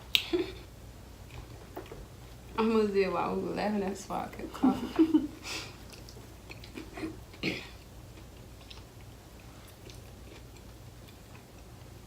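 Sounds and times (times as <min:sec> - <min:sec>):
person chewing: 0:05.8 - 0:12.0.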